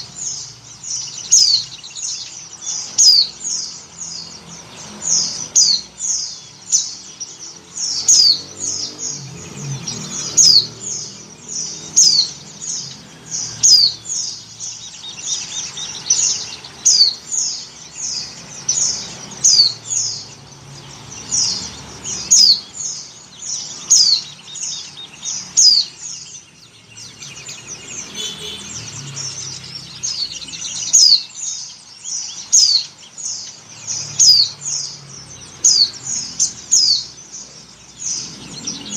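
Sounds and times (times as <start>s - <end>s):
bird chirping high: 0.0s - 38.9s.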